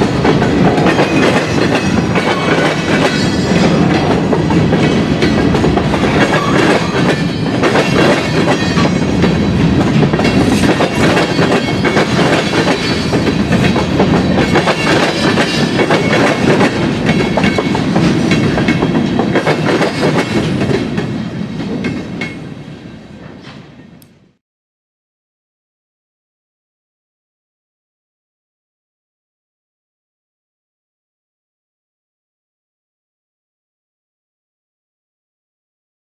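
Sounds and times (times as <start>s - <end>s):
train wheels clattering: 0.0s - 24.0s.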